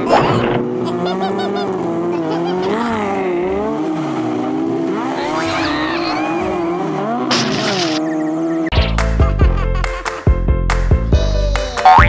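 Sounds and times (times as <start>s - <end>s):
racing car engines revving: 0.0s - 9.2s.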